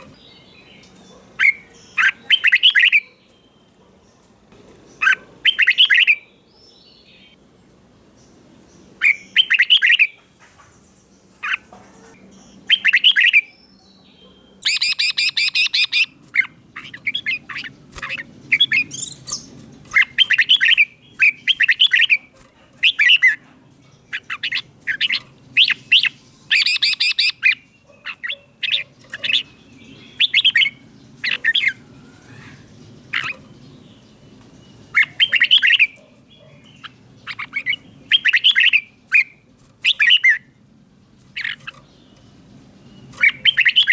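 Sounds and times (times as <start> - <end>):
bird rapid chattering: 0.0 - 3.4, 4.7 - 6.2, 11.4 - 13.5, 14.6 - 40.5, 41.1 - 43.9
bird whistled phrases: 14.6 - 16.1, 25.1 - 27.5.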